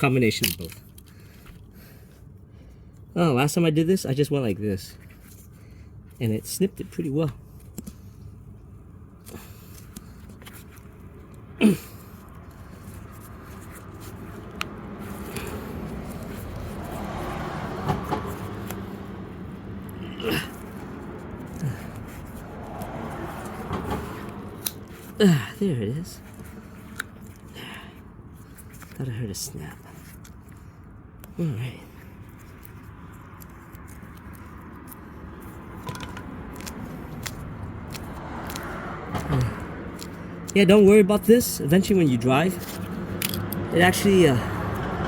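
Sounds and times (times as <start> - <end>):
road traffic rumble: 0.0 - 45.0.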